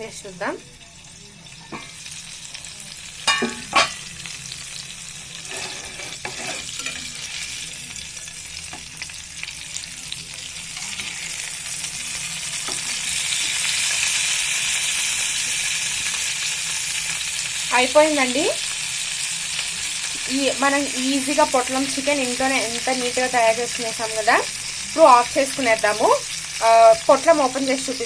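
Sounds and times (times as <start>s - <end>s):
food sizzling in frying oil: 0.0s - 28.0s.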